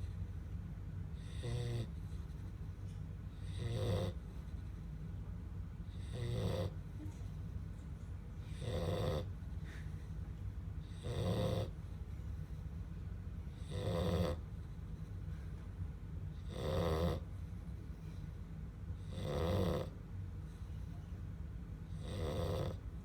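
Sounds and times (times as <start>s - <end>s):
low background hum: 0.0s - 23.0s
puppy snoring: 1.2s - 2.7s, 3.3s - 4.8s, 5.9s - 7.2s, 8.5s - 9.4s, 10.8s - 11.8s, 13.5s - 15.1s, 16.4s - 17.4s, 19.0s - 20.0s, 21.9s - 23.0s.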